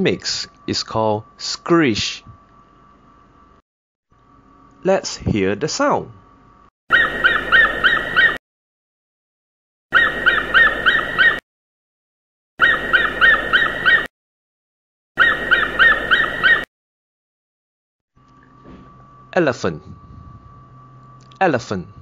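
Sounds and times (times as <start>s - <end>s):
eagle chirping call: 6.9s - 8.4s, 9.9s - 11.4s, 12.6s - 14.1s, 15.2s - 16.7s.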